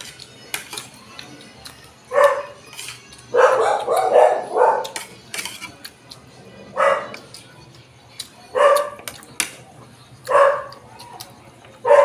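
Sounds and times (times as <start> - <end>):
dog barking: 2.1 - 2.5, 3.3 - 5.0, 6.8 - 7.2, 8.5 - 9.0, 10.2 - 10.8.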